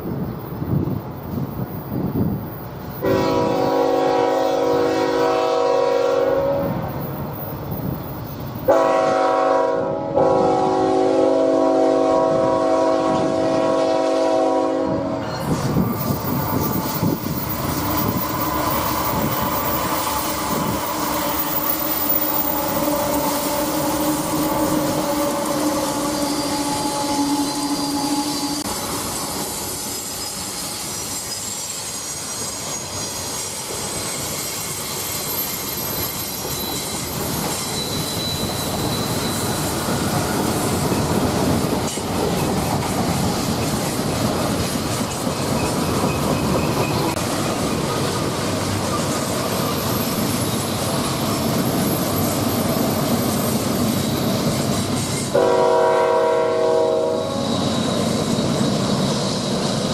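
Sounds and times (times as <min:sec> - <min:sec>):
freight train rumbling on rails: 0:00.0 - 0:59.9
locomotive air horn: 0:03.0 - 0:06.8, 0:08.7 - 0:15.2, 0:18.1 - 0:28.7, 0:55.3 - 0:57.7
high wheel squeal: 0:15.2 - 0:42.6, 0:43.4 - 0:55.4, 0:56.9 - 0:59.9.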